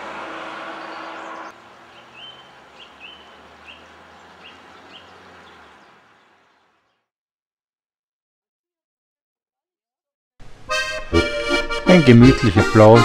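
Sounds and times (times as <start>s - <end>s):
small bird chirping: 0.8s - 7.0s.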